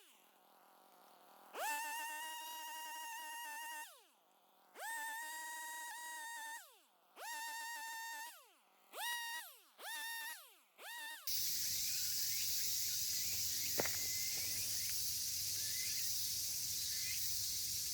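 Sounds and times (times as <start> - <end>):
high chorus of insects: 11.3 - 17.9.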